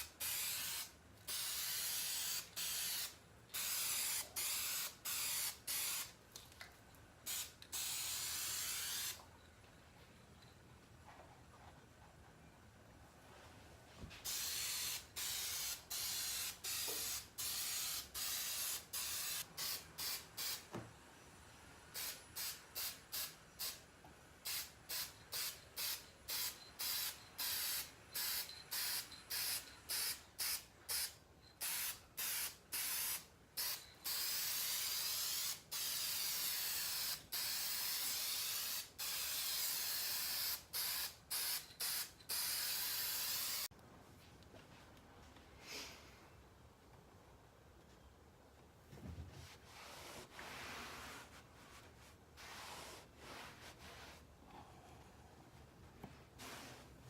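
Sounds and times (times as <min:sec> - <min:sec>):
spray paint hissing: 0:00.0 - 0:06.2, 0:07.2 - 0:09.2, 0:14.2 - 0:20.7, 0:21.9 - 0:23.8, 0:24.4 - 0:43.7.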